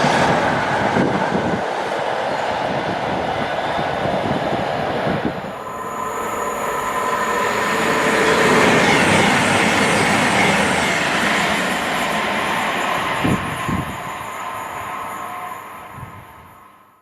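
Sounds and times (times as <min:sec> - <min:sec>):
train wheels on rails: 0:00.0 - 0:16.6
high whining tones: 0:05.1 - 0:16.5.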